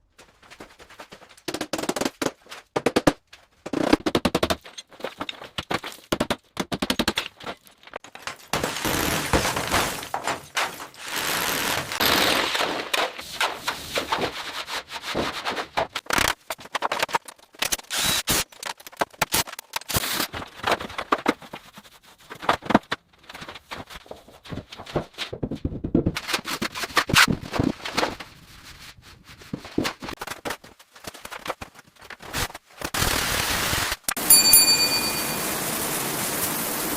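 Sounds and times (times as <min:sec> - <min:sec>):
clicks knocks and scrapes: 0:00.2 - 0:17.9.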